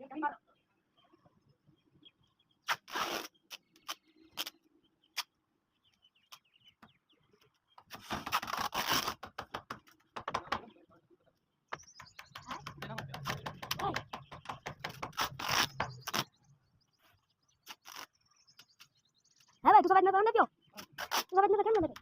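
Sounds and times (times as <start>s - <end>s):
sharp knocks and clicks: 9.2s - 10.7s, 11.7s - 16.1s.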